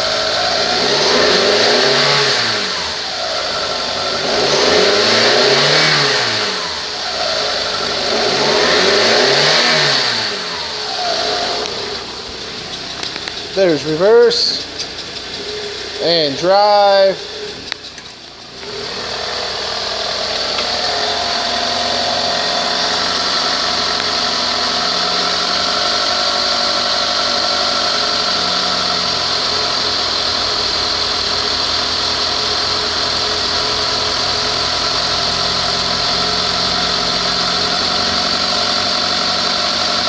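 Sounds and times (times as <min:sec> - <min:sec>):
car engine idling: 0:00.0 - 0:40.0
high whine: 0:06.7 - 0:29.2.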